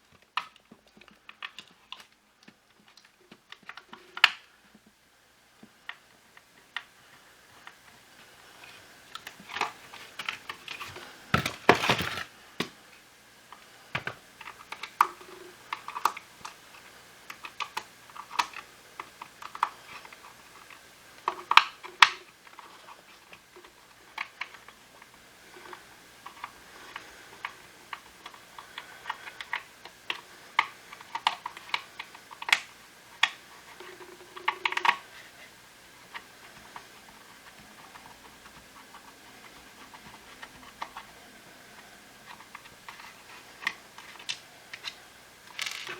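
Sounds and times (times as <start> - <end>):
plastic parts clicking and tapping: 0.0 - 4.9, 8.6 - 12.8, 13.5 - 35.3, 35.9 - 41.2, 41.8 - 45.9
loud plastic clattering: 9.5 - 12.8.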